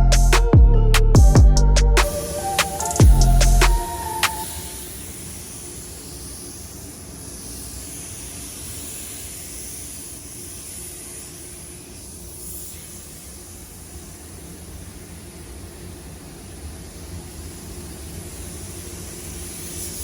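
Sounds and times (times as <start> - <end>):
paint spray gun hissing: 4.3 - 14.4.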